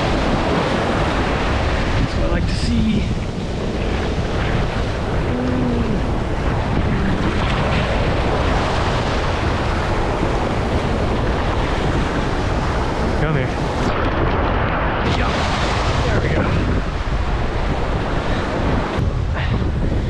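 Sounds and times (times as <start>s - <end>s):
breaking surf: 0.0s - 20.0s
wind buffeting microphone: 0.0s - 20.0s.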